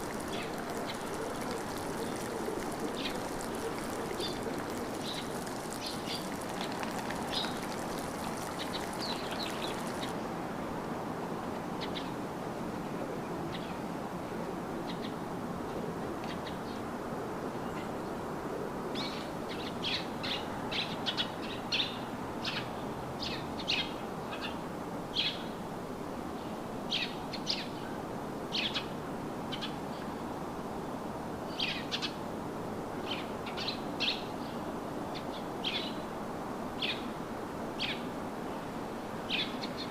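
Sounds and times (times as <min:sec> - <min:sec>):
songbirds chirping: 0:00.0 - 0:10.2
steady rushing background noise: 0:00.0 - 0:10.2.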